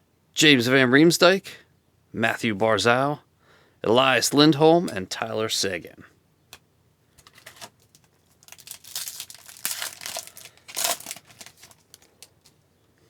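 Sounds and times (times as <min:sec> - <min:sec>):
foil wrapper crinkling and tearing: 0:07.2 - 0:12.6.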